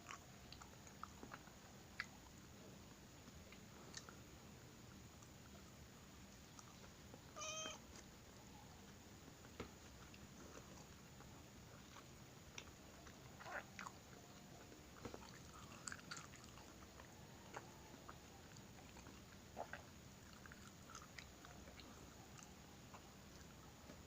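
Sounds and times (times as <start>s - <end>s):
cat crunching food: 8.8s - 24.0s.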